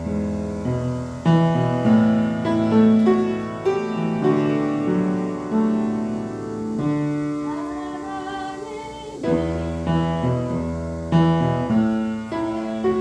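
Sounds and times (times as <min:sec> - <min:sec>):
piano chords: 0:00.0 - 0:13.0
person singing: 0:07.4 - 0:10.6, 0:12.2 - 0:13.0.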